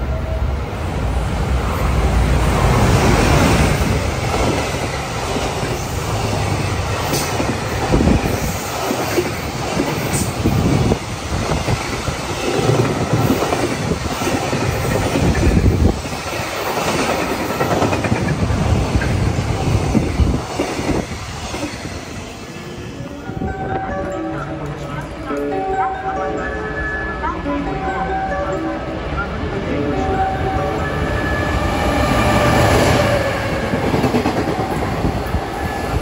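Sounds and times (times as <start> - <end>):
freight train wheels clacking on rails: 2.6 - 22.6, 30.9 - 36.0.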